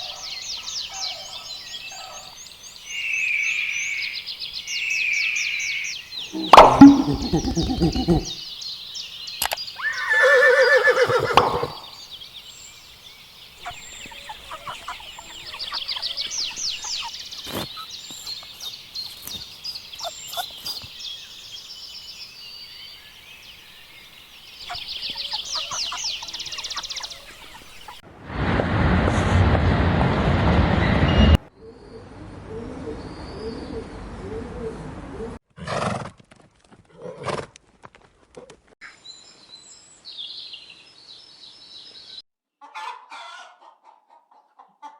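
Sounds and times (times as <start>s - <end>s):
high trilling bird calls: 2.9s - 12.2s
loud rushing noise: 28.1s - 31.4s.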